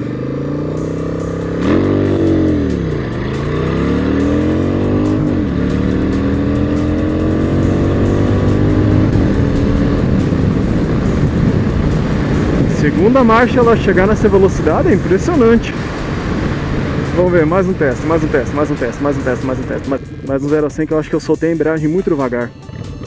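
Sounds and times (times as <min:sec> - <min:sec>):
motorcycle accelerating: 0:00.0 - 0:23.0
wind rush: 0:08.8 - 0:20.4.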